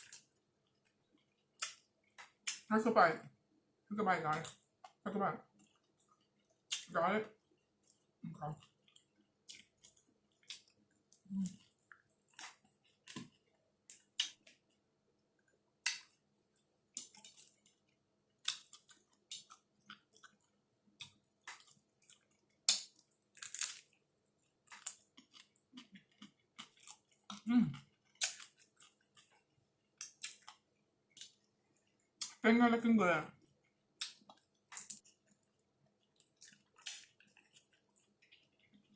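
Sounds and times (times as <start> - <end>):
person chewing food: 0.0 - 2.6, 4.4 - 32.4, 33.4 - 38.9.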